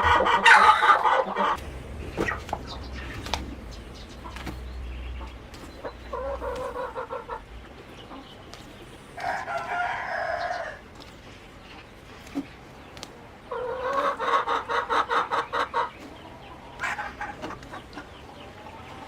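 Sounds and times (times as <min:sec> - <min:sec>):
low hum: 0:00.0 - 0:09.2
rooster crowing: 0:09.2 - 0:10.8.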